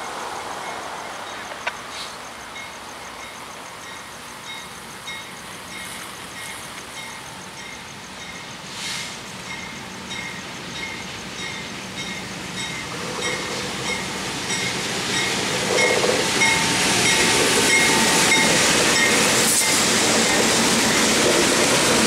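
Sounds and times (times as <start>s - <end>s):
freight train passing: 0.0s - 22.0s.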